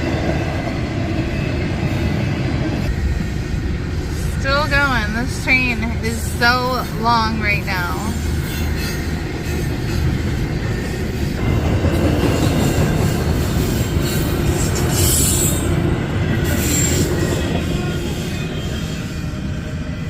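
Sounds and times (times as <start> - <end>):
train wheels rumbling and rattling: 0.0 - 20.0
high wheel squeals: 12.4 - 20.0.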